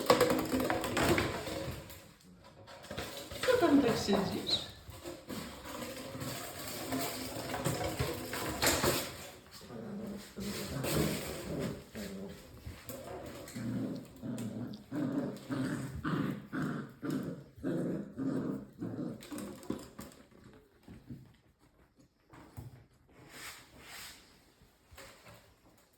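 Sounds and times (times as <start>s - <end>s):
puppies growling: 0.0s - 21.4s.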